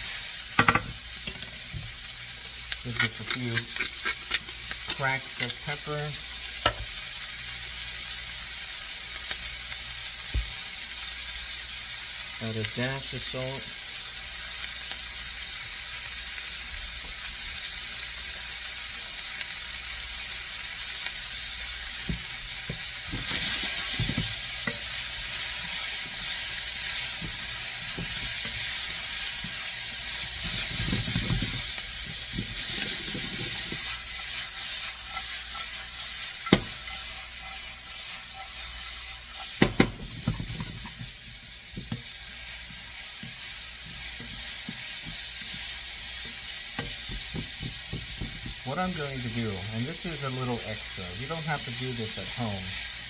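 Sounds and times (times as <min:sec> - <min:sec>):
vegetables sizzling in oil: 0:00.0 - 0:53.0
spatula scraping a pan: 0:22.7 - 0:48.4
spatula knocking on a pan: 0:36.4 - 0:36.8, 0:39.6 - 0:40.9, 0:46.8 - 0:48.6.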